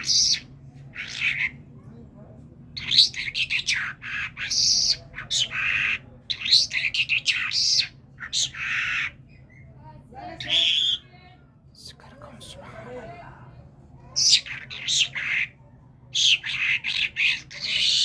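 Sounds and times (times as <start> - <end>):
bird squawking and chirping: 0.0 - 1.6, 2.8 - 9.7, 10.4 - 11.0, 14.2 - 18.0.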